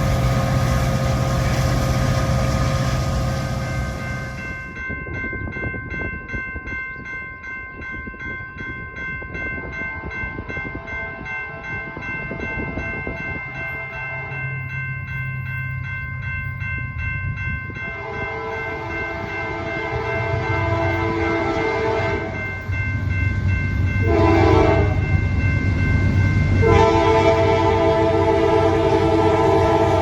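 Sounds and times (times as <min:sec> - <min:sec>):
locomotive engine rumble: 0:00.0 - 0:04.8
locomotive air horn blasts: 0:17.8 - 0:22.4, 0:24.0 - 0:25.1, 0:26.6 - 0:30.0.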